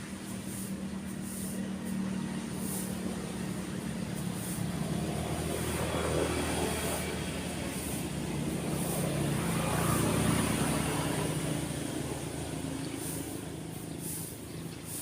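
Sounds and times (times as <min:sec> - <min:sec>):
vehicle engine passing by: 0:00.0 - 0:15.0.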